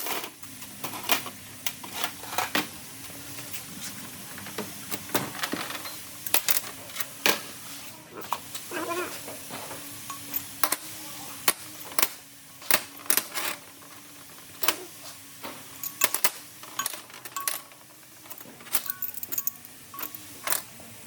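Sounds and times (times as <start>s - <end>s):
metallic tool clinks: 18.8s - 20.6s.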